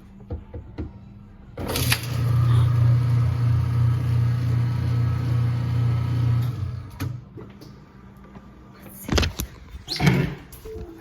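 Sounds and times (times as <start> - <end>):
garbage disposal motor running: 1.6 - 7.2.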